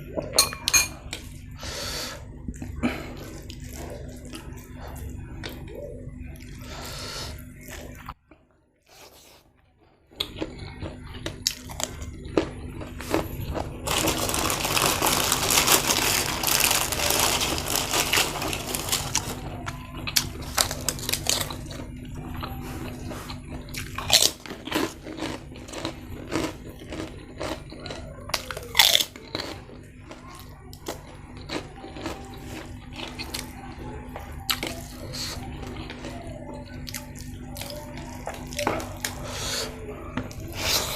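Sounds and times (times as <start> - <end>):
chewing and biting: 10.1 - 39.2
crunching of crisp food: 10.1 - 40.9.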